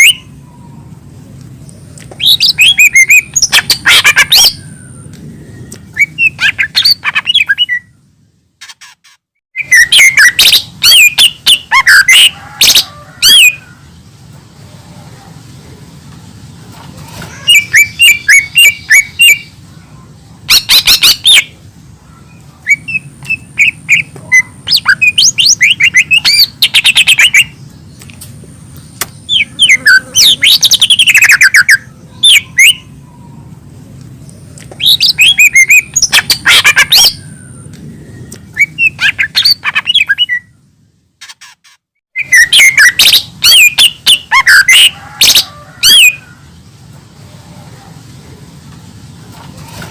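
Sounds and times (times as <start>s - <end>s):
bird chirping and whistling: 0.0s - 0.3s, 2.2s - 8.0s, 8.6s - 13.6s, 17.4s - 19.5s, 20.5s - 21.6s, 22.3s - 27.6s, 29.1s - 32.9s, 34.8s - 40.6s, 41.2s - 46.2s.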